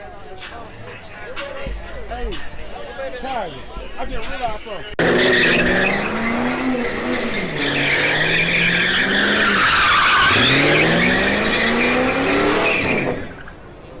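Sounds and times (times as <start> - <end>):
car engine revving hard: 5.0 - 13.2
tyres squealing: 5.0 - 13.6.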